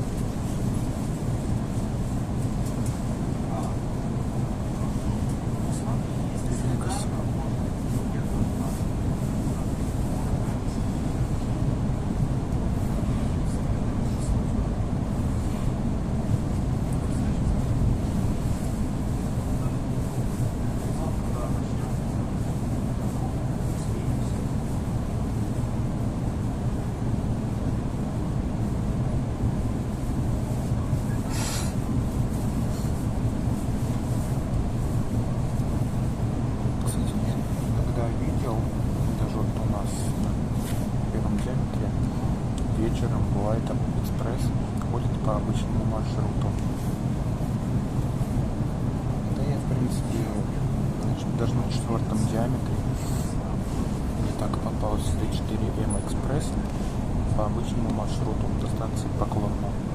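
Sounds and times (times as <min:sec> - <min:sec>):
train running gear rumble: 0:00.0 - 0:59.9
short hissing burst: 0:31.3 - 0:31.8.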